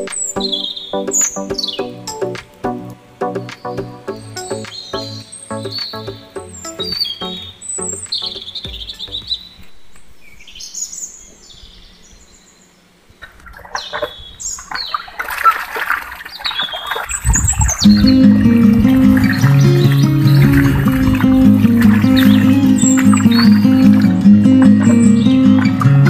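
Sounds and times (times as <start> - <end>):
birds chirping: 0.0 - 2.4, 3.2 - 26.0
background music: 0.0 - 9.7, 17.9 - 26.0.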